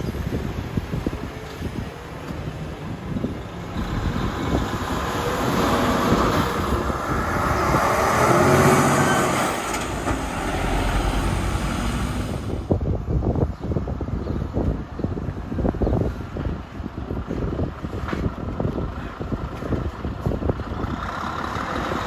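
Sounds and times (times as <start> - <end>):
heavy truck driving past: 2.4 - 12.7.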